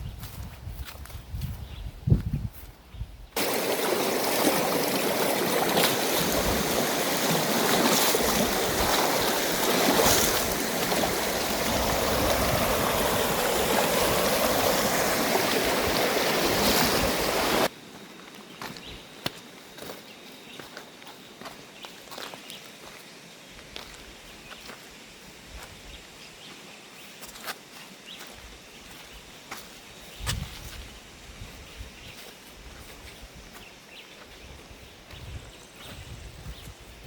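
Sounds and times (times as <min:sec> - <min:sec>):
stream water running: 0:03.4 - 0:20.0.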